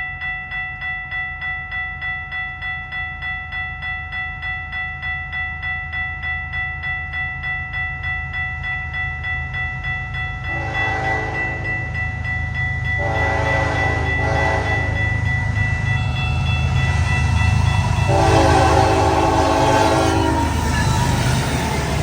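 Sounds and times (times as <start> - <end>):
low rumble of a train: 0.0 - 22.0
railway crossing bell ringing: 0.0 - 22.0
locomotive air horn blast: 10.5 - 11.7, 13.0 - 15.0, 18.1 - 20.7.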